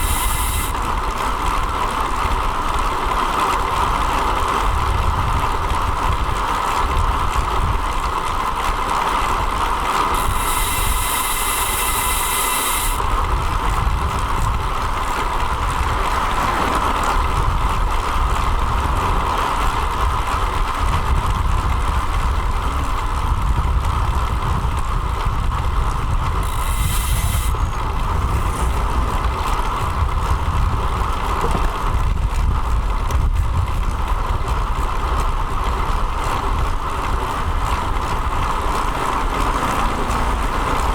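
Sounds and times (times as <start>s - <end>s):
high hiss: 0.0s - 0.8s, 10.1s - 13.1s, 26.4s - 29.8s
road noise: 0.0s - 40.9s
wind rumble: 0.0s - 40.9s.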